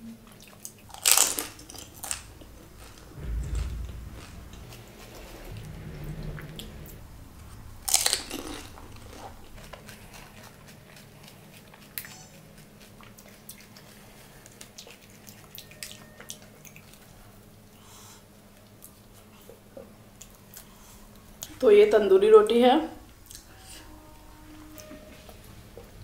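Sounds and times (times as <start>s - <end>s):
chewing crunchy food: 0.2s - 3.0s, 9.2s - 17.0s.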